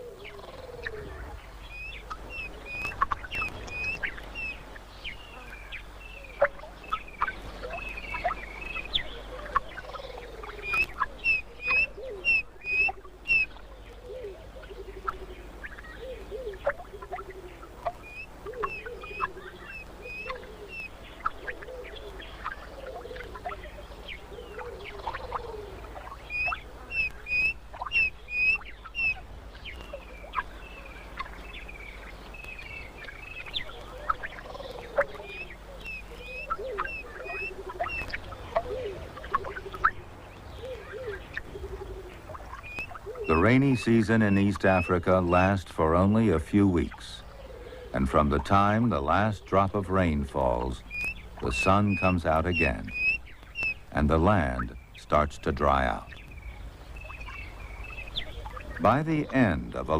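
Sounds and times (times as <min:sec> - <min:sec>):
lower falling bird calls: 0:00.0 - 0:59.9.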